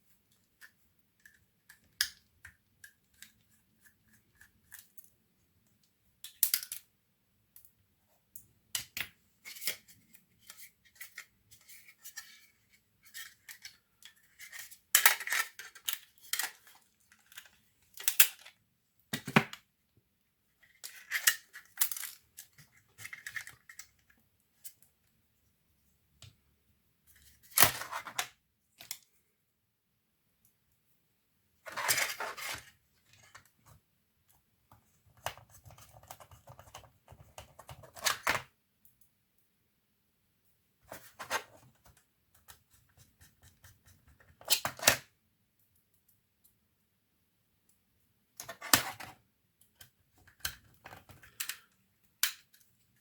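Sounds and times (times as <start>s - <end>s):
laptop parts clicking and scraping: 8.8s - 18.5s, 20.6s - 24.9s, 35.0s - 38.4s, 48.4s - 53.0s.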